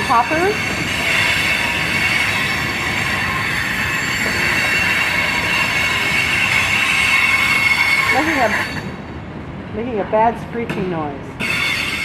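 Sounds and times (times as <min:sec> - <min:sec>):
high-pitched wheel screech: 0:00.0 - 0:08.9, 0:11.4 - 0:12.0
freight train cars rolling: 0:00.0 - 0:12.0.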